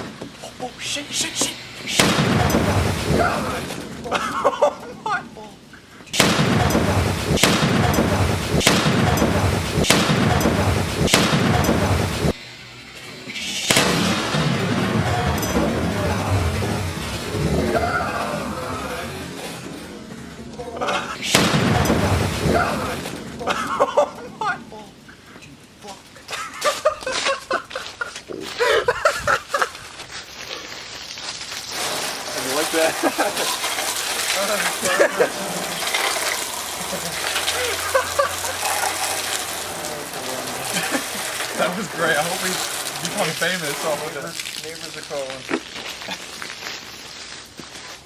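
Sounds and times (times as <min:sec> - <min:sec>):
continuous rushing noise: 0:00.0 - 0:28.3, 0:31.7 - 0:45.3
firework bangs: 0:01.3 - 0:05.2, 0:06.1 - 0:12.4, 0:13.4 - 0:25.1, 0:31.1 - 0:46.1
people laughing: 0:03.1 - 0:05.6, 0:17.5 - 0:19.5, 0:20.4 - 0:21.3, 0:22.4 - 0:25.0, 0:26.2 - 0:29.8, 0:32.6 - 0:33.6, 0:34.7 - 0:35.9, 0:36.6 - 0:39.2, 0:40.0 - 0:42.5.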